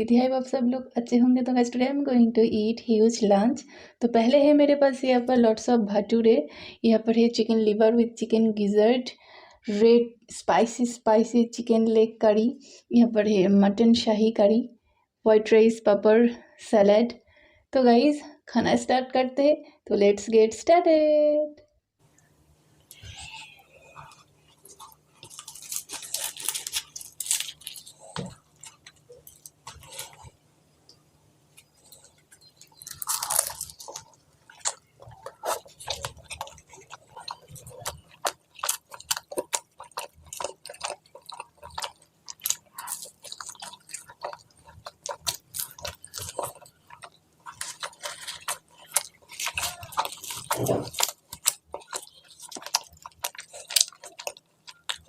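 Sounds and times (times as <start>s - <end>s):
person chewing food: 22.2s - 55.0s
crunching: 22.9s - 30.4s, 31.5s - 55.0s.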